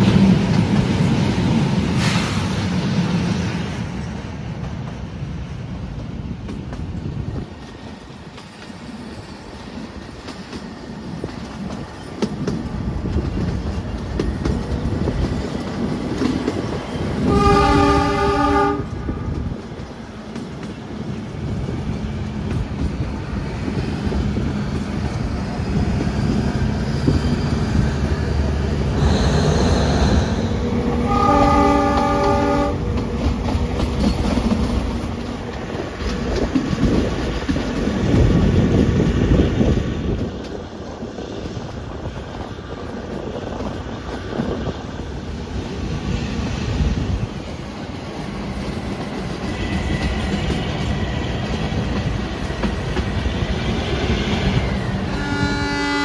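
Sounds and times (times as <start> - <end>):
train rumble and wheel clatter: 0.0 - 56.0
train horn: 17.2 - 19.4, 29.0 - 33.1, 55.1 - 56.0.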